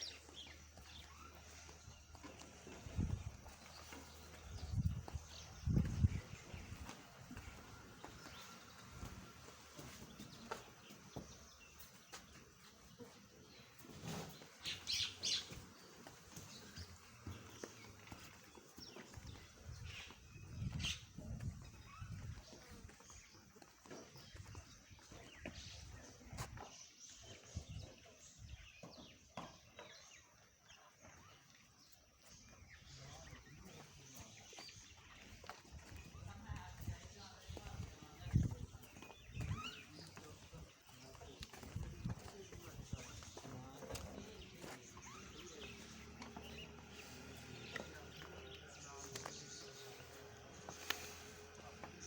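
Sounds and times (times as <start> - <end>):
small bird chirping: 14.0 - 15.8, 31.1 - 52.0.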